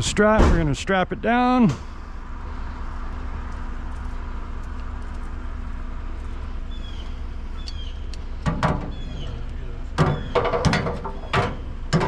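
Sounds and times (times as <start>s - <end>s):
vehicle engine idling: 0.0s - 12.0s
sharp knocks: 10.0s - 12.0s.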